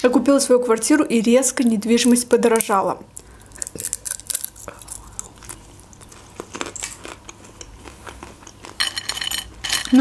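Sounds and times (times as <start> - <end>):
crunchy snack chewing: 3.2 - 8.8.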